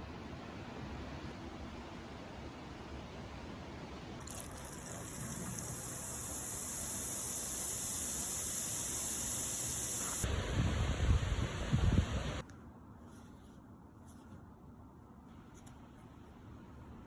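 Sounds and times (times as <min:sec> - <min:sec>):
high hiss: 0:04.2 - 0:12.4
rough hiss: 0:04.3 - 0:10.3.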